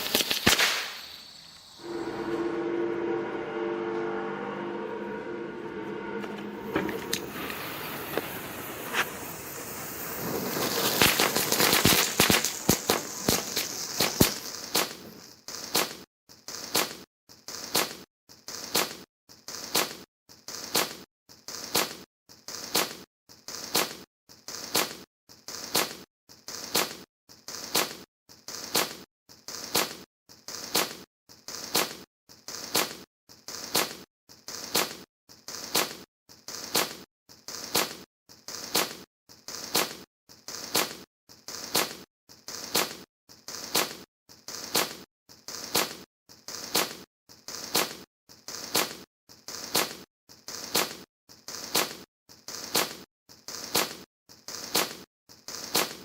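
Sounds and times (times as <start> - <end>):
firework crackling: 0.0 - 2.2, 7.1 - 15.9.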